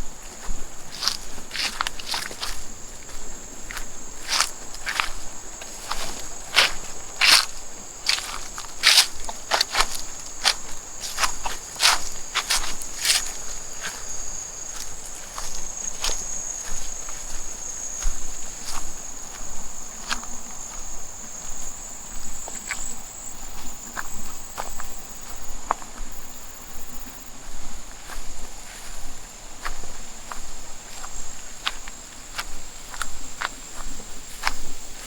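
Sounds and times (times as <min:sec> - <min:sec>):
insects droning: 0:00.0 - 0:35.0
cattle grazing crunches: 0:00.2 - 0:25.5, 0:30.9 - 0:35.0.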